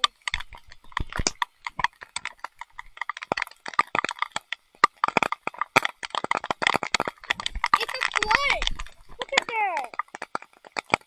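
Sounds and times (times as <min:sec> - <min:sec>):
raindrops tapping on phone case: 0:00.0 - 0:11.0.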